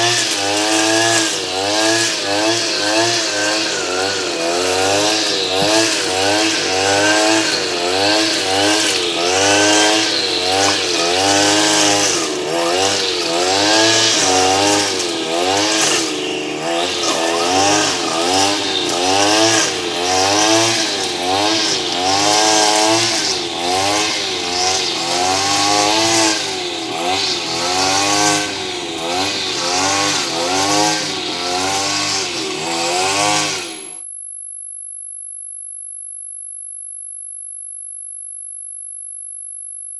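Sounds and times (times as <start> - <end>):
wavering motor-like buzz: 33.1 - 39.9
high-pitched steady tone: 33.6 - 39.9.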